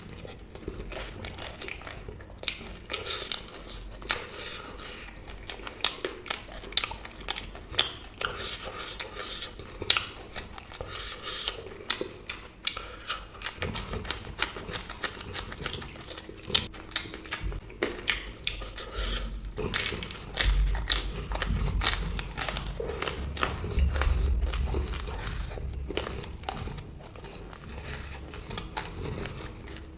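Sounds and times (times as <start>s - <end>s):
crisp bites and chewing: 0.0s - 29.9s
low rumble: 20.3s - 29.9s.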